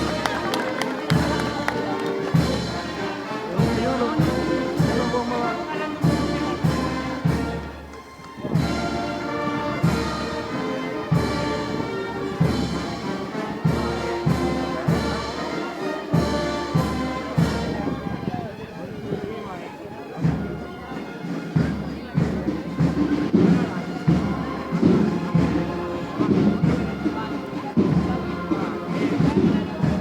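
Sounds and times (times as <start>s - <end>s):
drum beat: 0.0s - 7.9s
brass band playing slow march: 0.0s - 30.0s.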